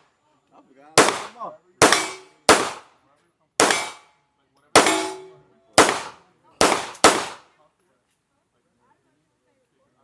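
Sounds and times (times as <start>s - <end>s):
gunshots: 1.0s - 2.9s, 3.6s - 4.1s, 4.8s - 7.4s.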